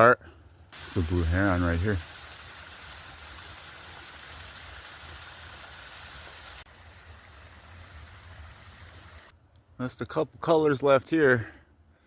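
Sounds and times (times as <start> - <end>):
creek water running: 0.5 - 9.3.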